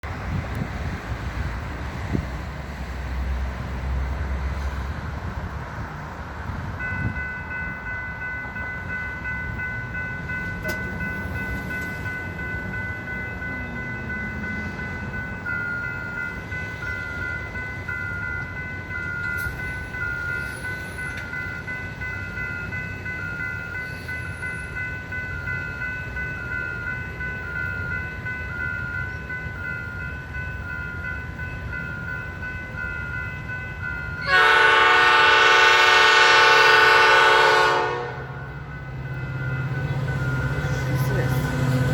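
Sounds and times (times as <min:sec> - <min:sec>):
locomotive air horn chord: 0:34.2 - 0:38.5.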